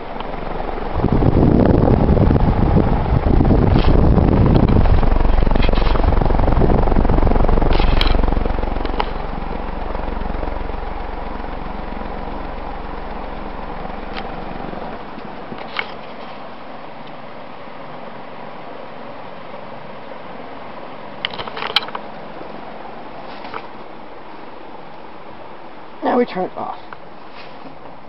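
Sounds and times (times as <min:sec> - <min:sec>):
air blast rumbling on microphone: 0:00.0 - 0:17.0
ceiling fan whooshing: 0:00.0 - 0:28.0
fan bearings hissing: 0:00.0 - 0:28.0.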